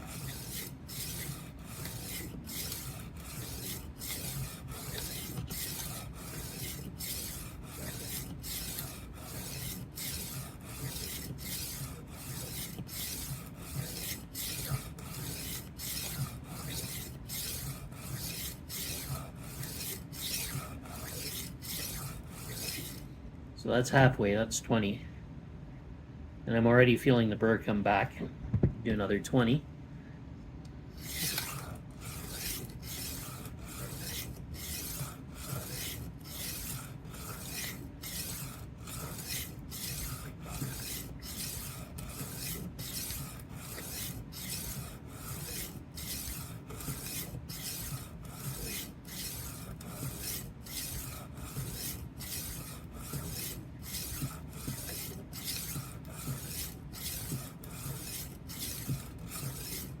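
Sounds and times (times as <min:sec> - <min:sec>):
knife sharpener rasping on blade: 0:00.0 - 0:23.1, 0:31.0 - 1:00.0.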